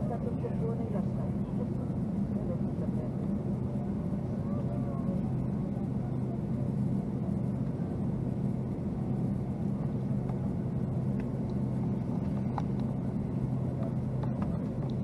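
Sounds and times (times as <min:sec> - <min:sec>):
airplane cabin drone: 0:00.0 - 0:15.0.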